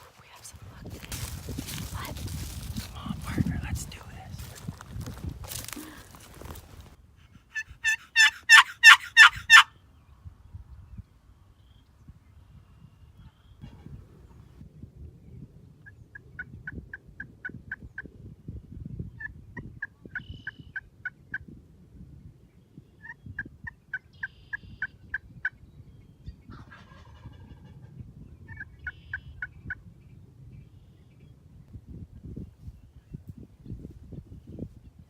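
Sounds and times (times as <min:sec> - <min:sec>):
turkey yelps: 0:07.5 - 0:09.7
turkeys gobbling: 0:07.6 - 0:09.7, 0:26.6 - 0:27.8.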